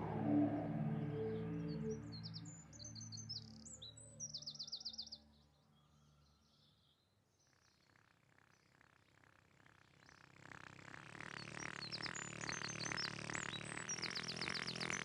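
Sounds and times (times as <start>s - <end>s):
background music chords: 0.0s - 3.6s.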